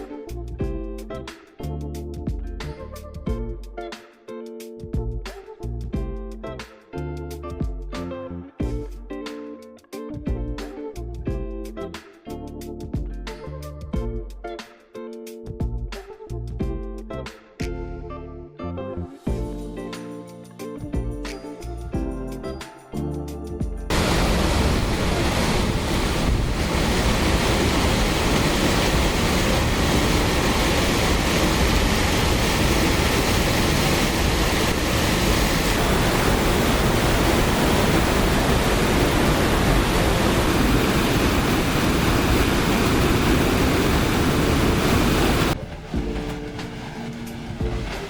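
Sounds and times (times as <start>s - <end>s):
rushing water roar: 23.9s - 48.0s.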